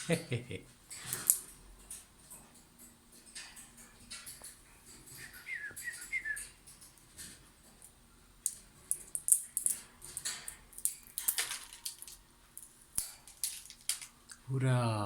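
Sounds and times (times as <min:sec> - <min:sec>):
bird chirping: 0:05.1 - 0:06.6.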